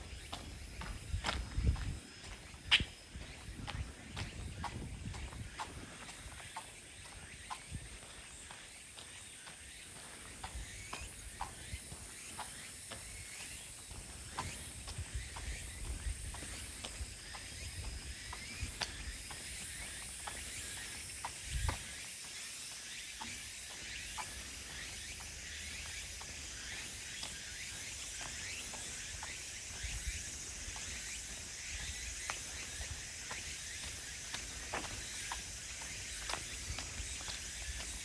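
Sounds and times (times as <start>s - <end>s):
footsteps on woodland path: 0.0s - 38.0s
high-pitched insect chorus: 0.0s - 38.0s.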